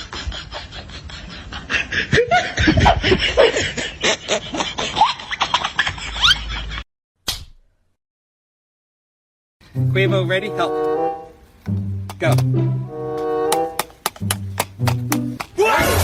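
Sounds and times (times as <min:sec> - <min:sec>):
people laughing: 0:00.0 - 0:06.8.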